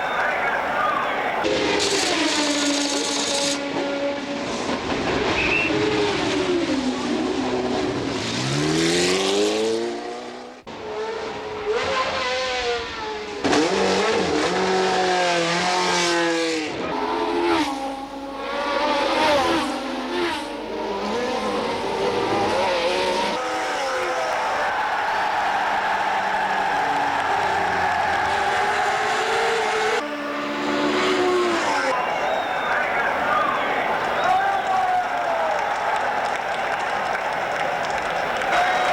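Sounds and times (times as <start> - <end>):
race car engines at high revs: 0.0 - 38.9.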